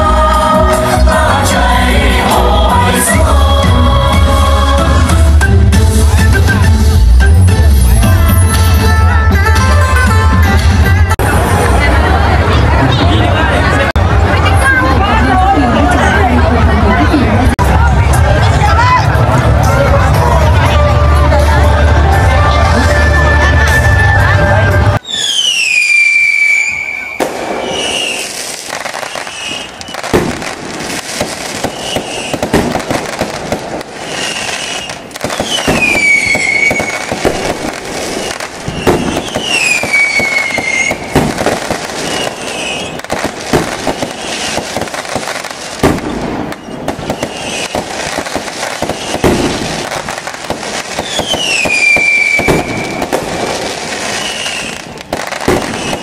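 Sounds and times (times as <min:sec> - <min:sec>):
fireworks bangs and crackling: 0:00.0 - 0:56.0
whistling firework shells: 0:25.0 - 0:30.4, 0:31.2 - 0:32.7, 0:33.9 - 0:44.9, 0:45.8 - 0:49.6, 0:50.9 - 0:53.2, 0:54.0 - 0:56.0.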